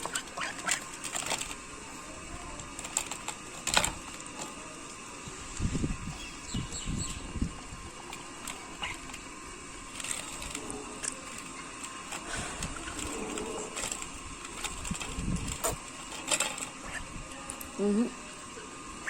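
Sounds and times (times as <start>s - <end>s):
ducks' bills clicking: 0.0s - 5.0s, 8.0s - 17.0s.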